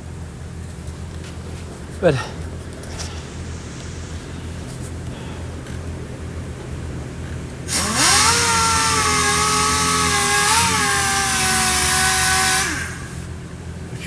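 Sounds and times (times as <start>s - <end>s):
low steady hum: 0.0s - 14.0s
power tool high whine: 7.6s - 13.8s.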